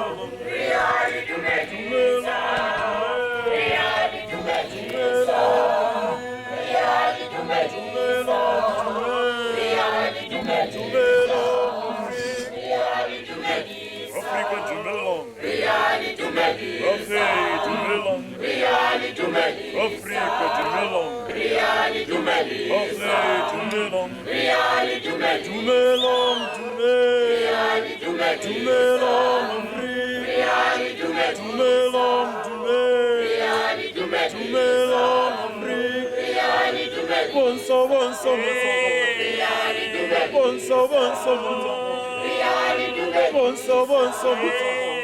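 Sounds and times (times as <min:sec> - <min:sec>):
choir singing: 0:00.0 - 0:45.0.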